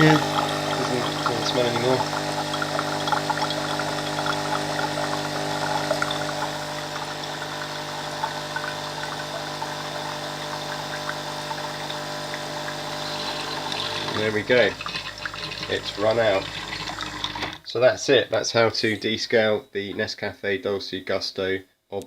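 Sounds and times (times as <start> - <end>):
coffee machine pump running: 0.0 - 17.6
hot water pouring from spout: 0.0 - 17.6.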